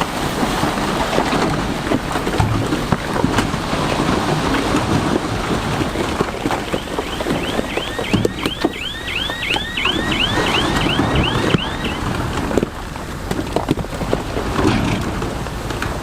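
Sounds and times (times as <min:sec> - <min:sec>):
bulldozer engine running: 0:00.0 - 0:14.6
high squeal from tracks: 0:06.5 - 0:12.4.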